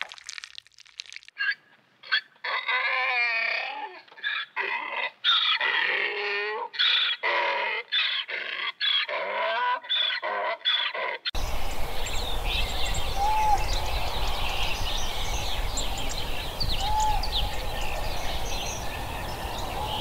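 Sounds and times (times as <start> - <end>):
donkey braying: 1.4 - 11.3.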